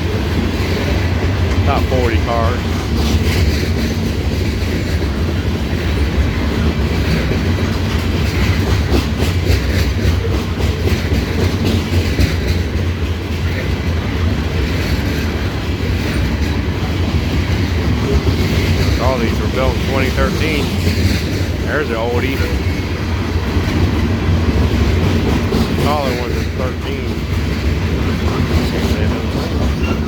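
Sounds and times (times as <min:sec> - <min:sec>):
train rolling past: 0:00.0 - 0:30.0
wheels clacking on rail joints: 0:02.6 - 0:19.1, 0:22.5 - 0:26.5.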